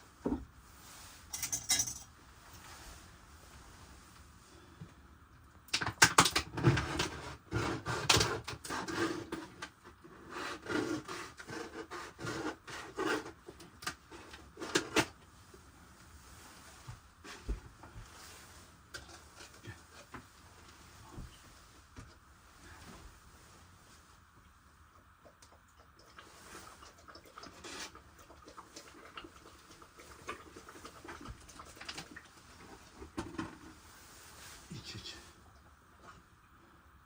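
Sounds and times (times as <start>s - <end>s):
objects being handled and set down: 32.9s - 34.7s.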